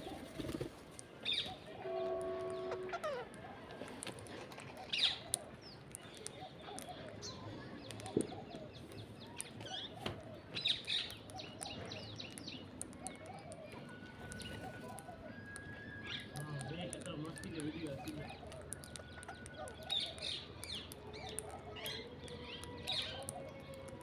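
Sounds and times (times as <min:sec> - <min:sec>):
parrots chirping and calling: 0:02.4 - 0:24.0
small sharp clicks: 0:05.2 - 0:24.0.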